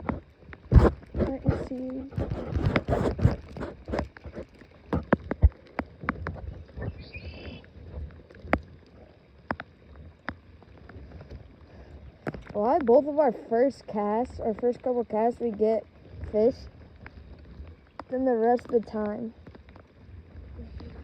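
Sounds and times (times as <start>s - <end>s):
gear knocking in small boat: 0.0s - 13.3s
faint high chirp: 6.8s - 7.6s.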